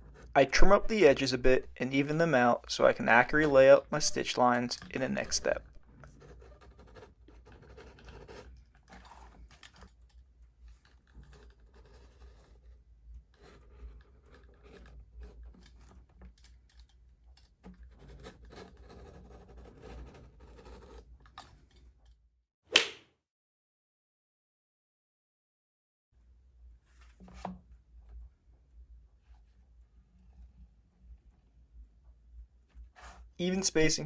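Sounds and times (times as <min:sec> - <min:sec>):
knife scraping leather: 0:03.4 - 0:09.9, 0:10.6 - 0:16.1, 0:17.8 - 0:21.8.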